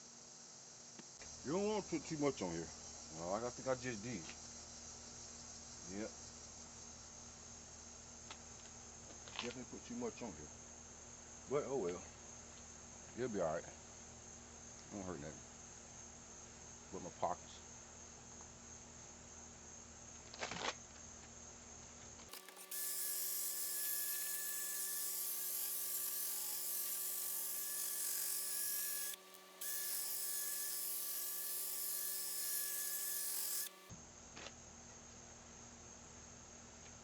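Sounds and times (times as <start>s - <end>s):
electric polisher whining: 22.3s - 33.9s.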